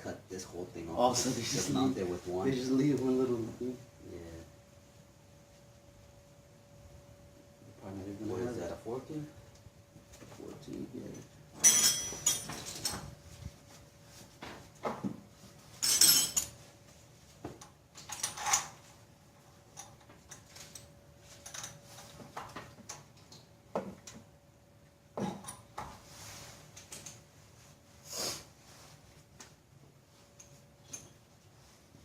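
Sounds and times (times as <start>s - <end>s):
faint steady hum: 0.0s - 32.0s
tools and metal parts clanking: 11.0s - 13.2s, 15.6s - 16.7s, 17.9s - 18.9s, 19.7s - 24.2s, 25.2s - 25.8s, 26.7s - 27.3s, 30.3s - 31.3s.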